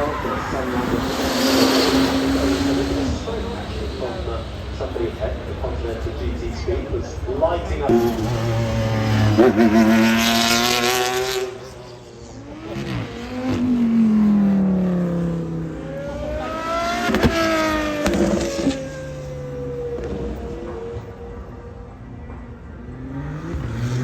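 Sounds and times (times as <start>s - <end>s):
car engine accelerating hard: 0.0s - 24.0s.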